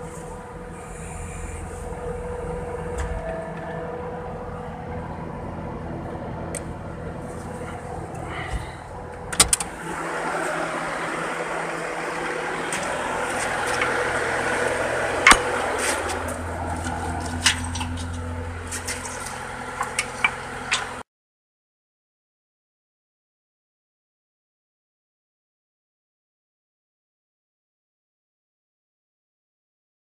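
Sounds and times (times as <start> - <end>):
diesel machinery running: 0.0 - 21.0
metallic clanks: 12.6 - 21.0.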